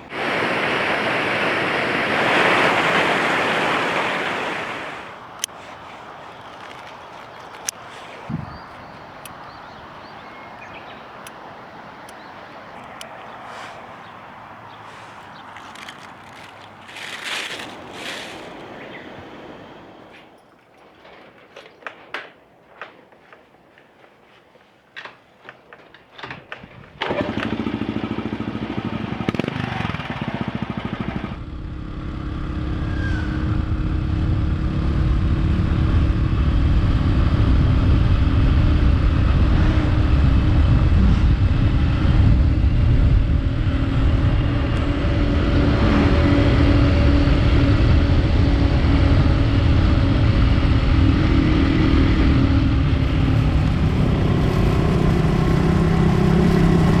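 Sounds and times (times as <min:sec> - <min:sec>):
motorcycle engine running: 0:27.0 - 0:57.0.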